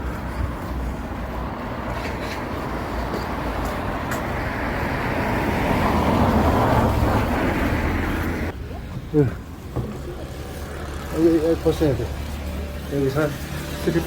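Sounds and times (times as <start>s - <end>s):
road traffic rumble: 0.0s - 14.0s
vehicle passing: 1.3s - 8.6s.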